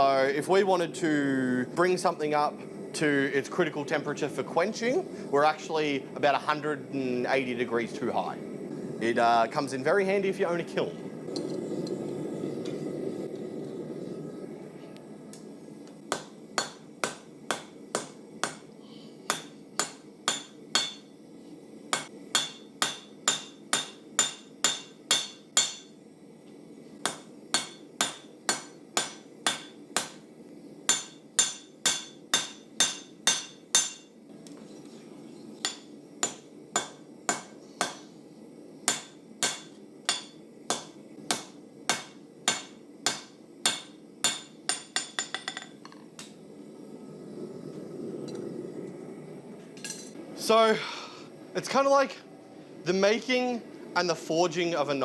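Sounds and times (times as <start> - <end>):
hammer striking metal on anvil: 16.1 - 21.1, 21.9 - 26.0, 27.0 - 30.2, 30.9 - 34.1, 35.6 - 38.1, 38.9 - 45.8.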